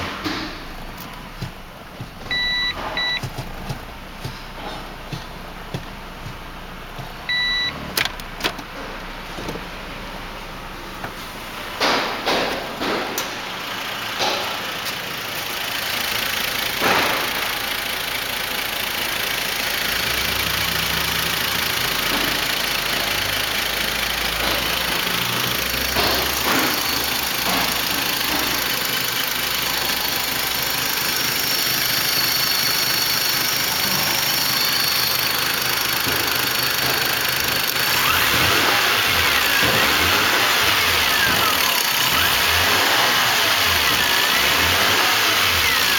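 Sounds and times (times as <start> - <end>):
sharp clicks and knocks: 0.0 - 9.7, 24.3 - 30.5
engine idling: 0.0 - 11.1, 11.8 - 45.9.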